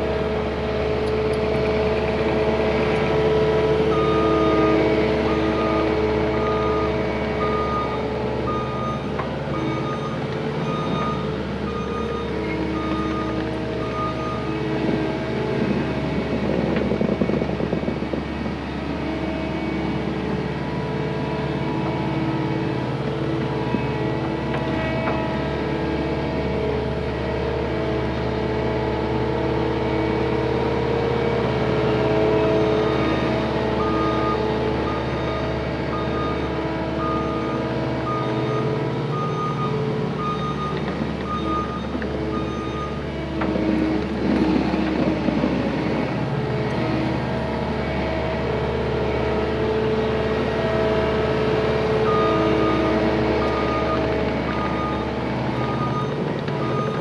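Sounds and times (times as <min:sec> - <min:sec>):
diesel engine running: 0:00.0 - 0:57.0
reverse alarm beeping: 0:03.9 - 0:14.5, 0:32.6 - 0:43.0, 0:52.1 - 0:57.0.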